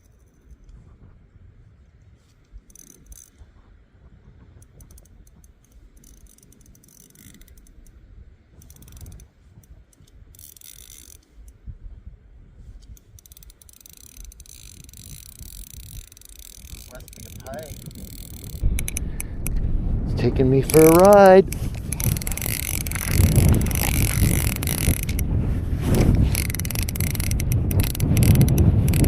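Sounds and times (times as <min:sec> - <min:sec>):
wind rumble on microphone: 0:00.4 - 0:29.0
fishing reel ratchet clicking: 0:02.6 - 0:03.4, 0:04.6 - 0:08.0, 0:08.6 - 0:11.6, 0:12.8 - 0:19.6, 0:20.6 - 0:29.0.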